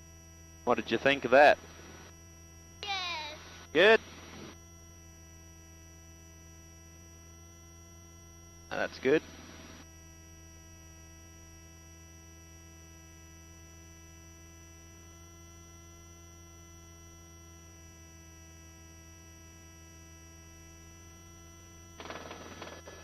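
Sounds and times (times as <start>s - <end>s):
turbine whining tones: 0.0s - 12.5s, 14.0s - 23.0s
helicopter cabin hum: 0.6s - 2.1s, 2.8s - 6.0s, 8.5s - 9.8s, 21.7s - 23.0s.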